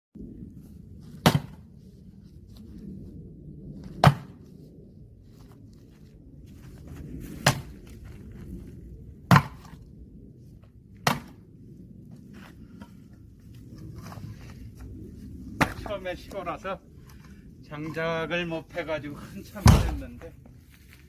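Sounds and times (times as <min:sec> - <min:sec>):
axe chopping firewood: 0:01.2 - 0:01.6, 0:04.0 - 0:04.4, 0:07.4 - 0:07.7, 0:09.3 - 0:09.8, 0:11.0 - 0:11.4, 0:15.6 - 0:15.9, 0:19.6 - 0:20.0.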